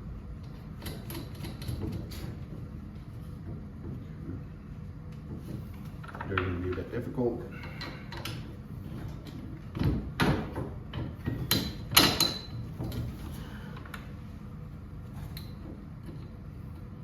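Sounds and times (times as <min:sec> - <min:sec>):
metal knocks and clanks: 0:09.1 - 0:13.2.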